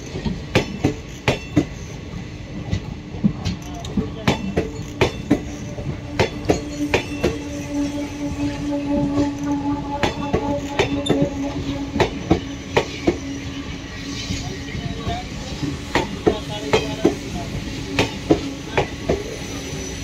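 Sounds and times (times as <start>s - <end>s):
train wheels clacking over rail joints: 0.0s - 20.0s
steady wheel squeal: 19.2s - 20.0s.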